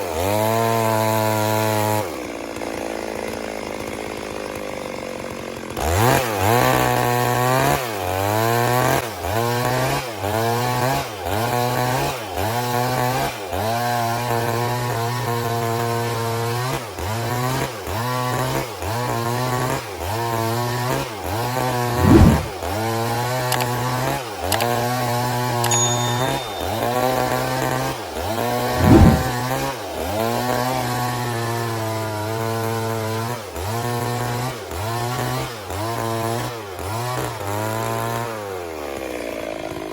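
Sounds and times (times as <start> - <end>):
chainsaw cutting log: 1.1 - 7.4, 23.4 - 24.8.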